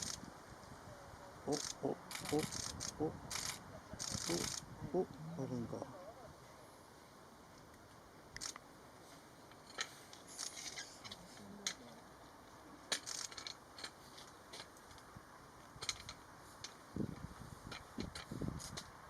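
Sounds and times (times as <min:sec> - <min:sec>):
faint background hiss: 0:00.0 - 0:19.0
camera shutters clicking: 0:01.5 - 0:04.6.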